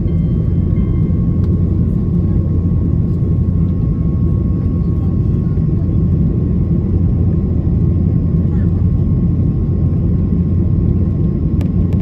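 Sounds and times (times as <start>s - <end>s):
thin steady whine: 0.0s - 6.2s
airplane cabin rumble: 0.0s - 12.0s.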